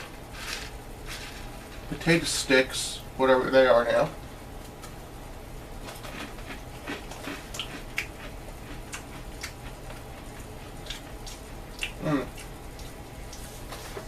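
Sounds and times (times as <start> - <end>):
steady low hum: 0.0 - 14.0
person chewing crunchy snack: 5.8 - 13.5.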